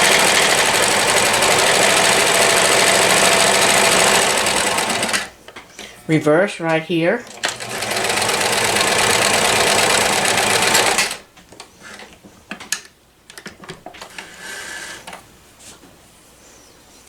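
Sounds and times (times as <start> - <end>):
sewing machine stitching: 0.0 - 5.3, 7.2 - 11.2.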